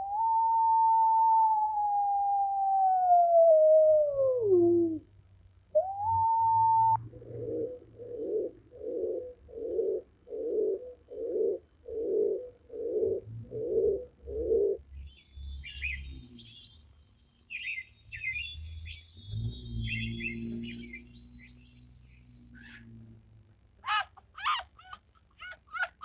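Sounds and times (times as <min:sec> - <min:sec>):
low bird calls: 0:05.8 - 0:23.1, 0:23.8 - 0:26.0
high bird chirps: 0:14.9 - 0:22.9.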